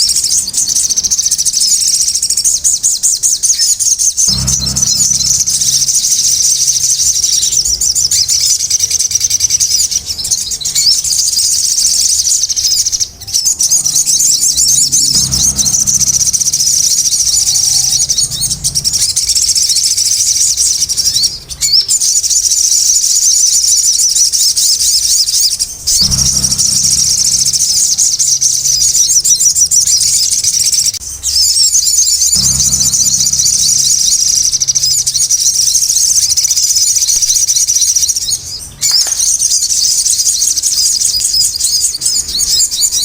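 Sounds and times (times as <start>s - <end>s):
songbird chirping and trilling: 0.0s - 43.0s
faint low hum: 4.2s - 22.8s, 25.1s - 40.2s.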